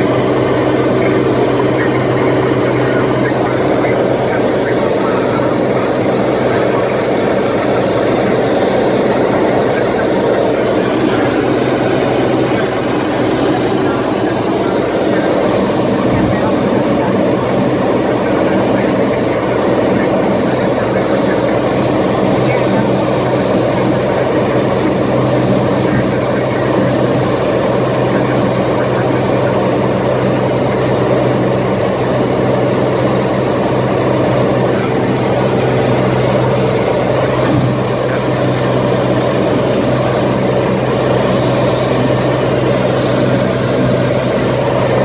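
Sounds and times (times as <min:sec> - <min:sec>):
propeller plane engine drone: 0:00.0 - 0:45.0.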